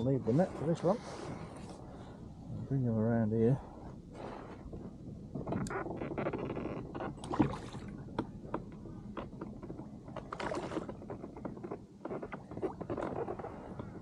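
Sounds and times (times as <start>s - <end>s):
knocks and clatter against kayak: 4.6s - 14.0s
water splashing: 7.1s - 8.0s.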